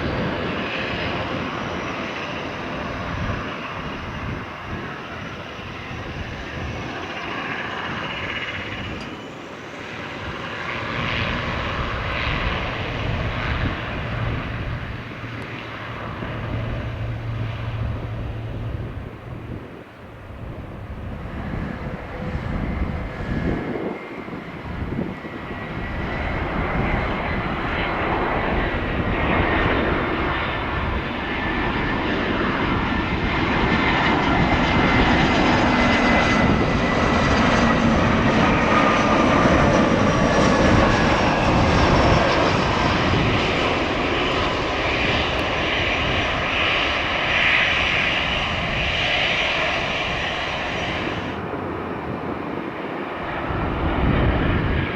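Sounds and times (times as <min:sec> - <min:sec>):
jet engines roaring: 0:00.0 - 0:54.9
high fan whine: 0:12.4 - 0:27.7.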